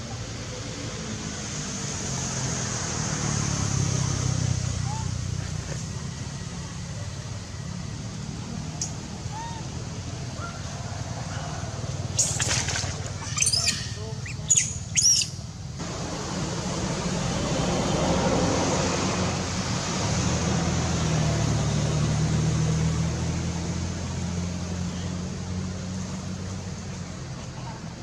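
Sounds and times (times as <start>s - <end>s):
monkey screeching: 9.3s - 9.7s, 12.1s - 15.4s.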